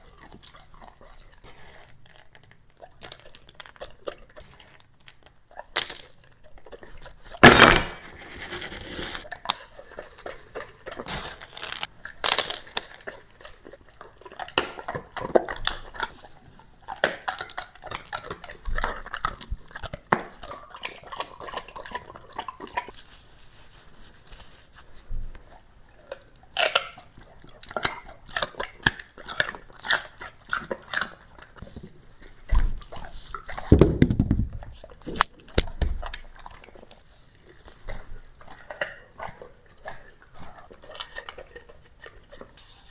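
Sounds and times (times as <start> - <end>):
dog chewing and crunching food: 0.0 - 7.5, 8.1 - 42.9.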